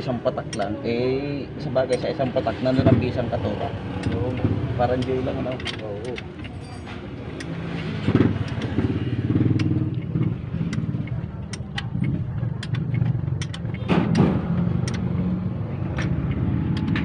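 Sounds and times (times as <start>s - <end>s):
hand tools clicking and clattering: 0.4s - 0.7s, 3.9s - 15.1s.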